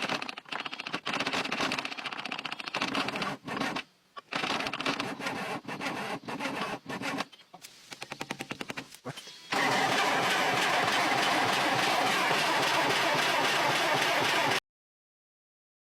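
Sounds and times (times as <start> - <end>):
starter motor cranking diesel engine: 9.5 - 14.6.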